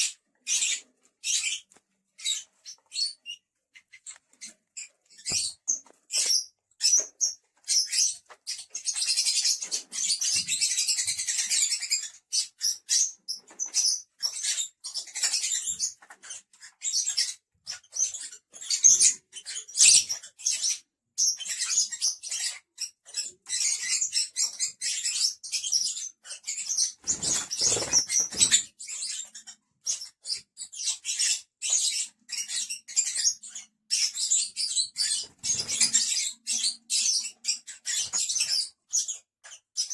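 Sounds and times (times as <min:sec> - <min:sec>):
lovebirds chattering: 0:00.0 - 0:39.9.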